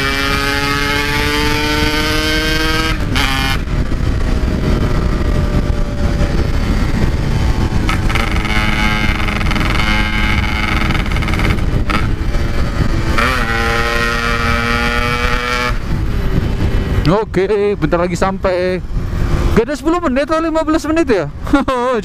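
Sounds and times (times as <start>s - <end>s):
two-stroke motorcycle engine: 0.0s - 17.0s
wind rumble on microphone: 0.0s - 22.0s.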